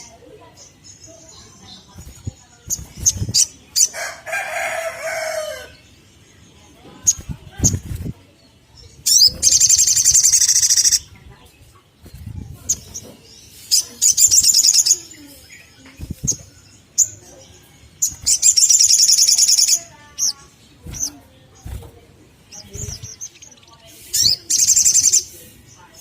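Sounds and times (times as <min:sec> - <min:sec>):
sunbird chattering trills: 0:08.8 - 0:21.6, 0:22.4 - 0:26.0.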